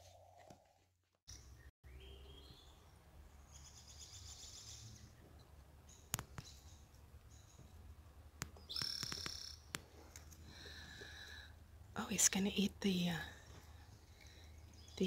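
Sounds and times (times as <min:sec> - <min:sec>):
sharp clicks: 0:08.4 - 0:10.4.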